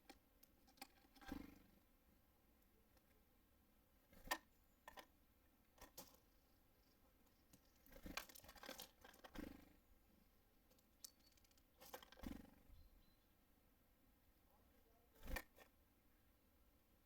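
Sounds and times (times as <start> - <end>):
scratchy rustles: 7.2 - 9.5.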